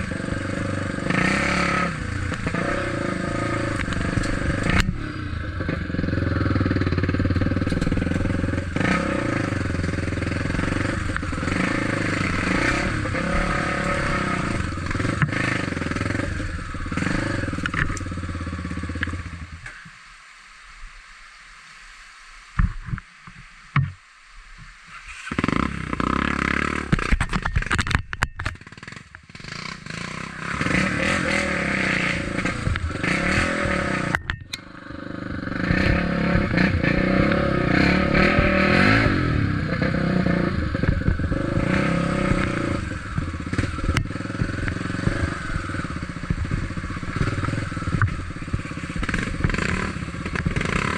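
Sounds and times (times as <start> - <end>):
motorcycle engine running: 0.0 - 19.8, 25.2 - 50.9
clattering and scraping over ground: 26.8 - 29.5.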